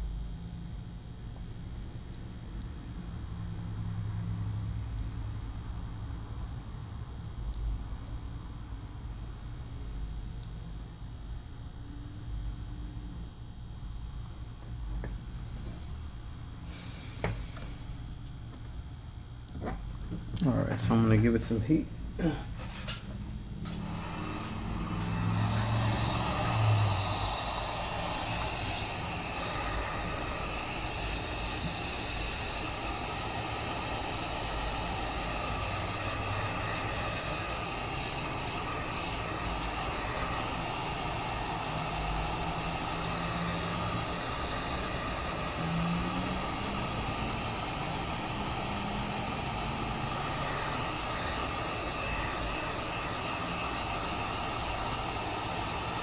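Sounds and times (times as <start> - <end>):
heat gun blowing: 15.0 - 18.1, 23.6 - 56.0.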